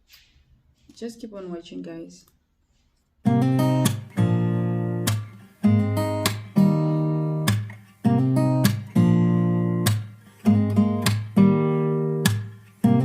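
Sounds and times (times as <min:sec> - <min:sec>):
acoustic guitar strumming chords: 0:03.3 - 0:13.0.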